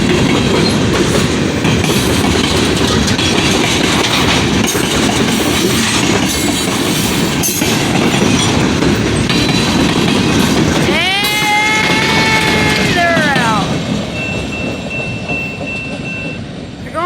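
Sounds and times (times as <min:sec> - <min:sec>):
wheels clicking over rail joints: 0:00.0 - 0:16.8
train rumbling past: 0:00.0 - 0:17.0
locomotive air horn: 0:10.9 - 0:13.2.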